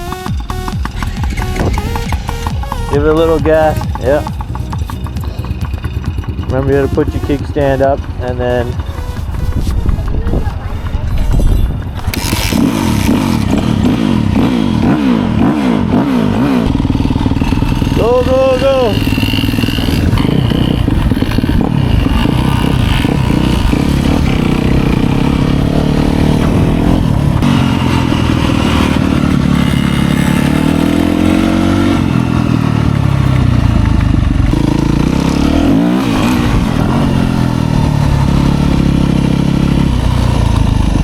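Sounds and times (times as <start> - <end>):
small dirt bike engines revving: 0.0 - 41.0.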